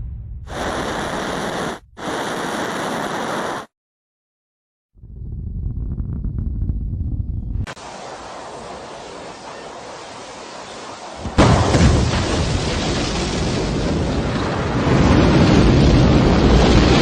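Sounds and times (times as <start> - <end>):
even hiss: 0.5 - 3.7
rocket engines roaring: 0.5 - 3.7.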